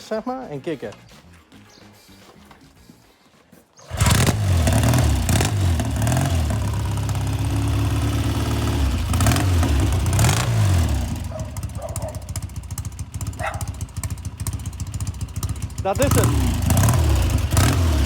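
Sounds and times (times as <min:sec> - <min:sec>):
motorcycle engine revving: 0:03.8 - 0:18.0
motorcycle kick-start: 0:03.8 - 0:18.0.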